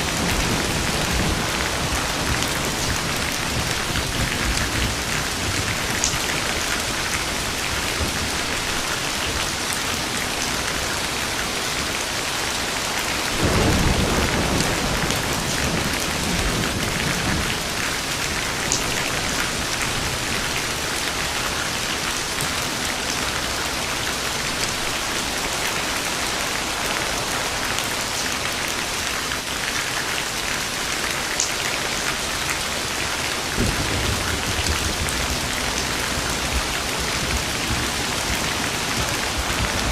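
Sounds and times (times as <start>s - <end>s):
thunder rolling: 0.0s - 9.4s, 13.4s - 20.9s, 33.5s - 39.9s
heavy rain: 0.0s - 39.9s.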